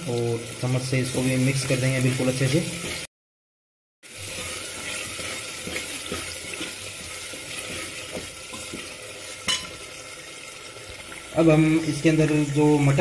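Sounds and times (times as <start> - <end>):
masala sizzling in hot oil: 0.0 - 3.1, 4.0 - 13.0.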